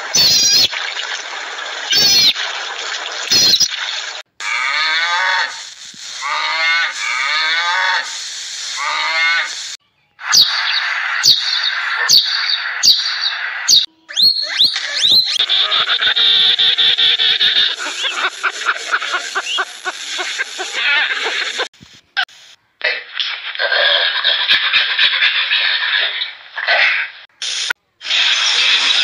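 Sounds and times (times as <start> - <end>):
short high animal calls: 0.1 - 0.7, 1.9 - 2.4
sparrows chirping: 10.3 - 15.4.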